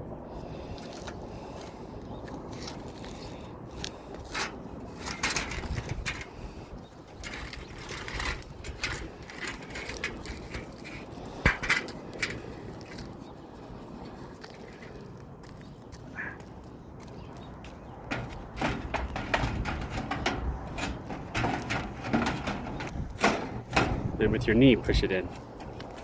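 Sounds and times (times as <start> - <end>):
metal panel scraping and knocking: 4.3 - 6.4, 7.2 - 12.4, 18.1 - 24.5.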